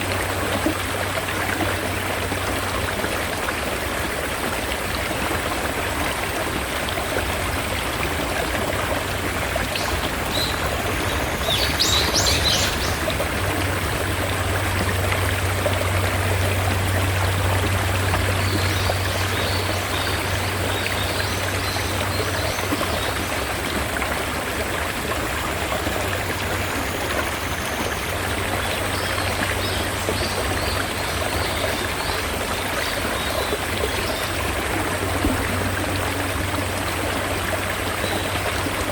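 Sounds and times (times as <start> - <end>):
mountain stream running: 0.0 - 38.9
birds chirping: 9.8 - 13.2.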